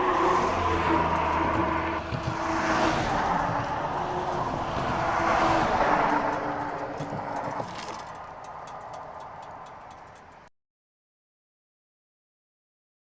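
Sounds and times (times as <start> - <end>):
motorcycle engine and exhaust: 0.0 - 10.5
rushing wind: 0.0 - 10.5
light ticking: 0.1 - 10.5.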